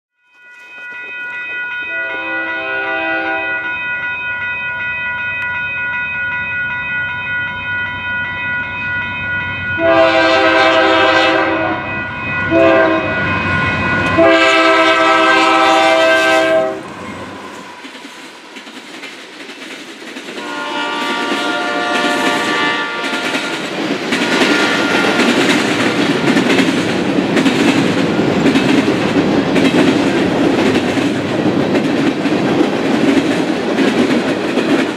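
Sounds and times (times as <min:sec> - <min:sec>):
locomotive air horn: 0:01.9 - 0:03.7, 0:09.8 - 0:11.9, 0:12.5 - 0:16.9, 0:20.4 - 0:23.6, 0:24.4 - 0:25.4.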